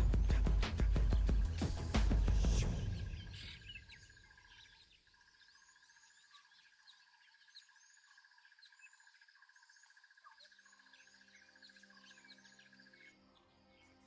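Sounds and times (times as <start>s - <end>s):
rapidly pulsing insect trill: 0.0s - 13.3s.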